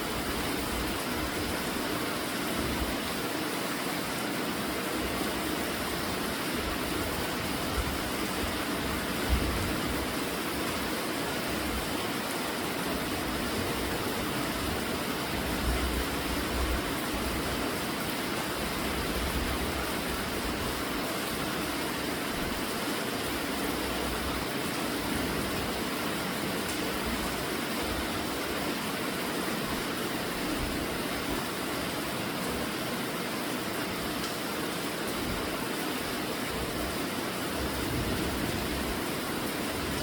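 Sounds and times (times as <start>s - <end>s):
steady rainfall hiss: 0.0s - 40.0s.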